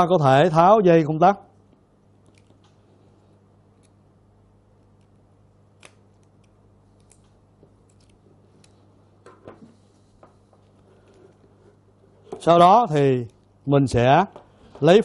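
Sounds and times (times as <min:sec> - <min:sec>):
steady low hum: 0:00.0 - 0:15.0
clicks and scrapes of wiring work: 0:01.6 - 0:04.0, 0:04.8 - 0:15.0.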